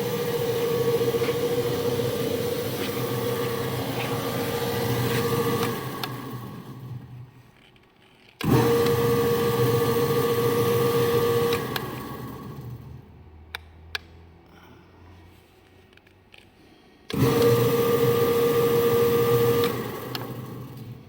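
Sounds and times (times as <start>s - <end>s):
electric motor whine: 0.0s - 7.0s, 8.4s - 12.7s, 17.2s - 20.8s.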